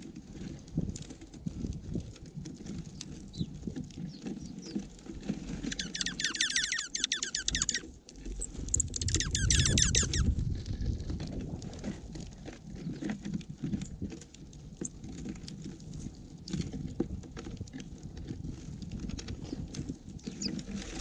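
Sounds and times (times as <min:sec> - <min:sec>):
birds pecking and scratching: 0:00.0 - 0:21.0
small bird chattering trill: 0:05.6 - 0:10.3.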